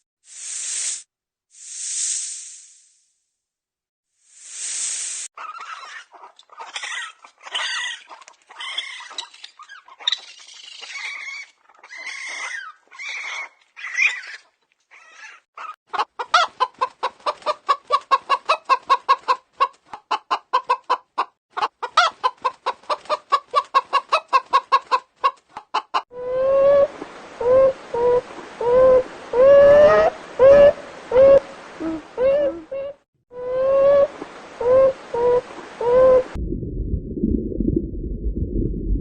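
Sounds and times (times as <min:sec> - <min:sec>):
chickens squawking: 0:05.4 - 0:26.9, 0:27.6 - 0:33.0
chickens clucking rapidly: 0:15.6 - 0:26.0.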